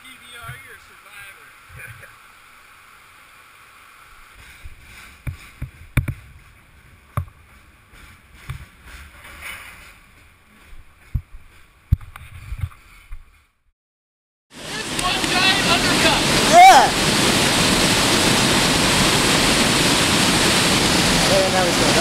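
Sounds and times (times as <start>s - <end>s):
rushing creek water: 0.0s - 8.6s, 14.5s - 22.0s.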